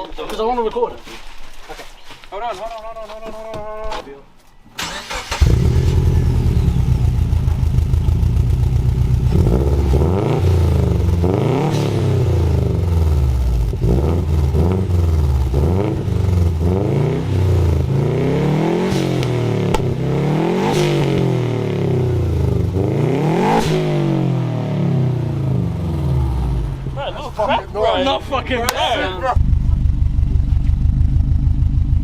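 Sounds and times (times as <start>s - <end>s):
car engine revving: 4.8s - 27.6s.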